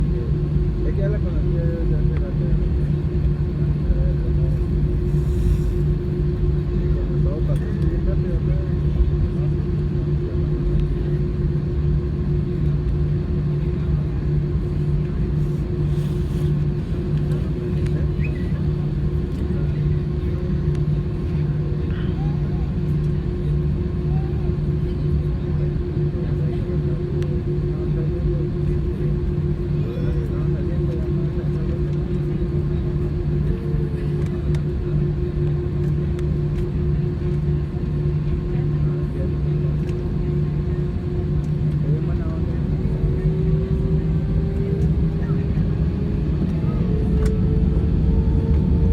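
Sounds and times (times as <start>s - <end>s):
aircraft engines rumbling: 0.0s - 48.9s
low pulsing throb: 0.0s - 48.9s.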